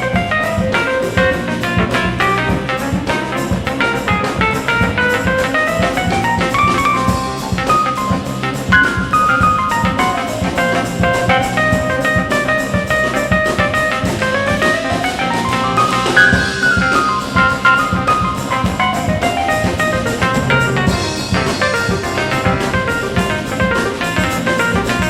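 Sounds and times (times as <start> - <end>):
drum kit beat: 0.0 - 25.0
guitar: 0.0 - 25.0
lead melody line: 15.8 - 24.4.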